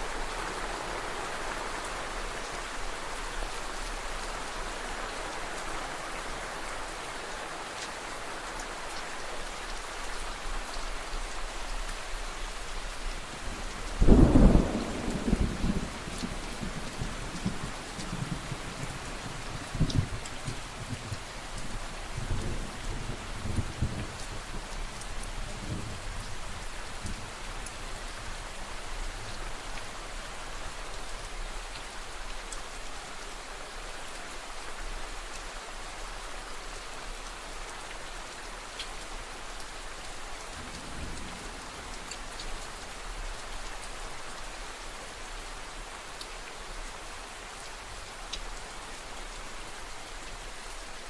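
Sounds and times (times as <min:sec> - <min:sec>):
steady rain falling: 0:00.0 - 0:51.0
distant thunder rumble: 0:14.0 - 0:21.3.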